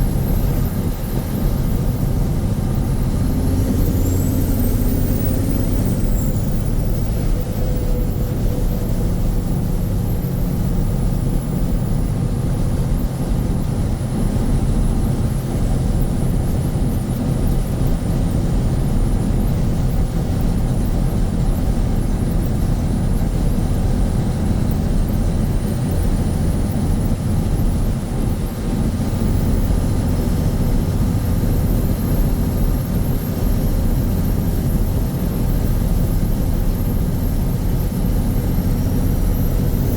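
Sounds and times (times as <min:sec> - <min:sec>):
faint high whine: 0:00.0 - 0:14.0
truck diesel engine droning: 0:00.0 - 0:39.9.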